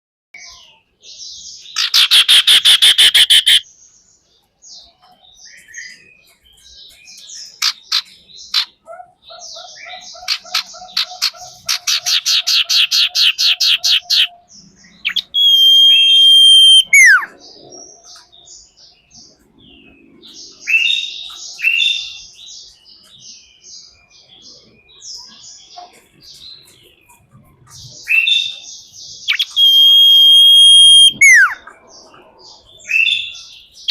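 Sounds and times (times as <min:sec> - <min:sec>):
bird long falling whistle: 0:15.1 - 0:17.3, 0:29.4 - 0:31.6.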